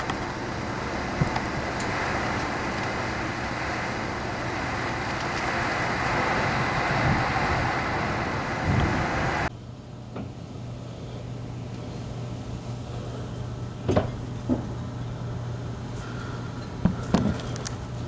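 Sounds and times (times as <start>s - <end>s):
storm wind buffeting microphone: 0.0s - 9.5s
steady low hum: 0.0s - 18.0s.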